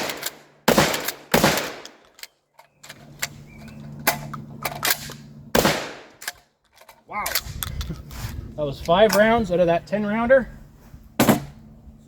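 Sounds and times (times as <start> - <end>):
shotgun shots: 0.0 - 2.0, 5.5 - 6.2
shotgun action clicks: 0.0 - 7.9.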